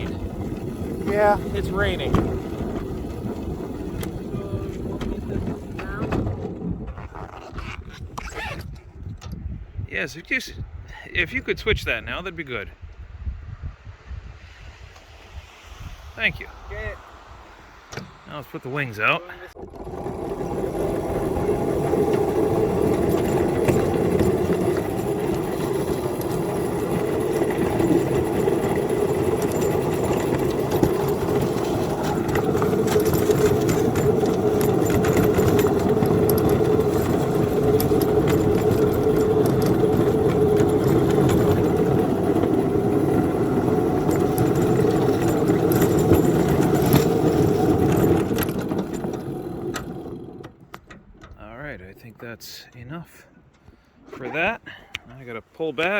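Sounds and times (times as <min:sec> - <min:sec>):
train engine running under load: 0:19.6 - 0:50.4.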